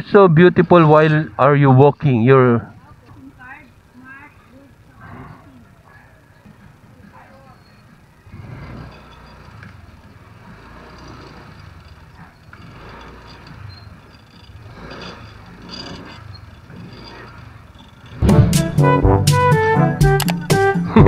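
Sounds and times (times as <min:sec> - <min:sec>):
street background rumble: 0:00.0 - 0:21.0
vehicles passing: 0:00.0 - 0:21.0
loud music with pitched notes: 0:18.2 - 0:21.0.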